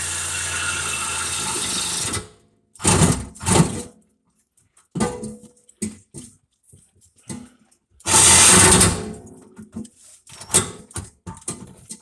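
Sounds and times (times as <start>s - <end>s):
handheld power tool running: 0.0s - 2.2s.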